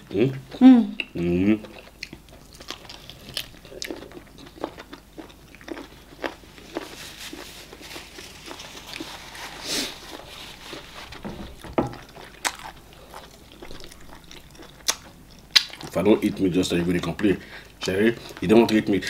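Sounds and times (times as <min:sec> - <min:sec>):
dull knock: 0:11.2 - 0:12.0.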